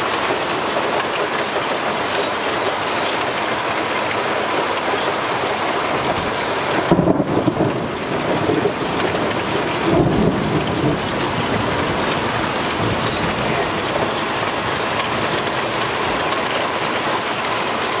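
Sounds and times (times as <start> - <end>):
heavy rain hissing: 0.0 - 18.0
thunder rumbling: 5.9 - 17.1.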